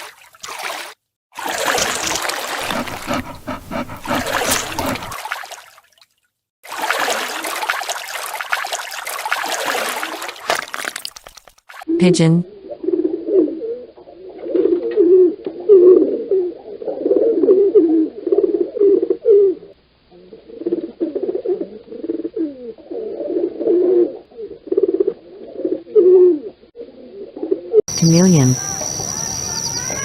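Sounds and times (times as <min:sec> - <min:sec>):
pigeons cooing: 0:02.6 - 0:05.2, 0:12.6 - 0:26.4.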